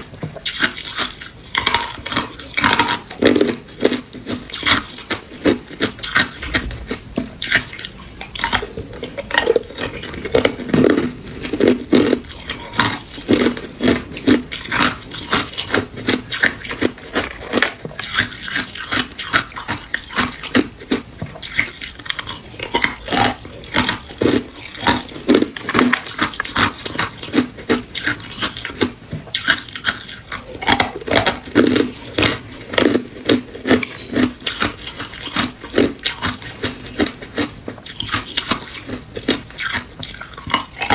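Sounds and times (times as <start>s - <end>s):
ice cubes crunching: 0.0s - 40.9s.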